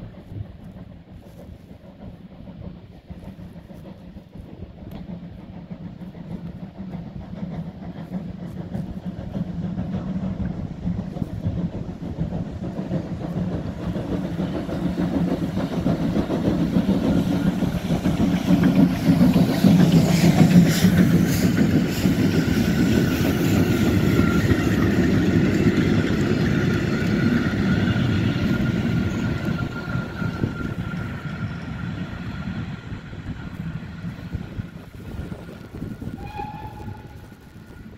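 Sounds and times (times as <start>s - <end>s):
steam train passing: 0.0s - 37.9s.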